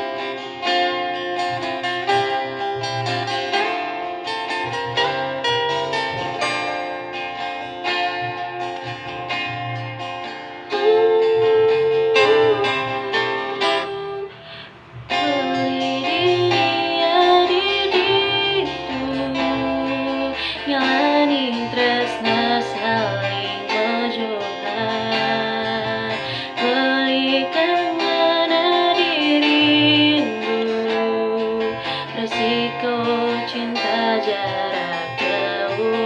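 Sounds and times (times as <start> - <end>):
guitar accompaniment: 0.0 - 36.0
woman singing slow song: 10.6 - 36.0.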